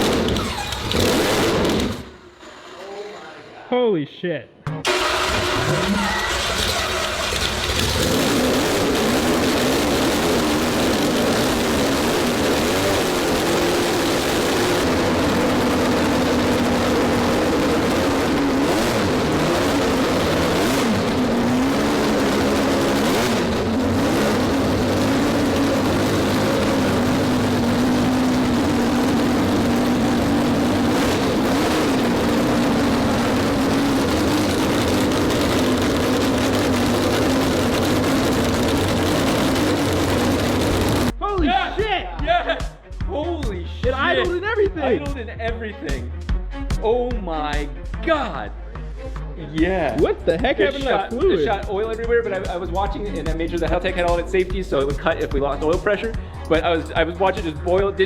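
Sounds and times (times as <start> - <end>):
rotary engine idling: 4.9 - 41.1.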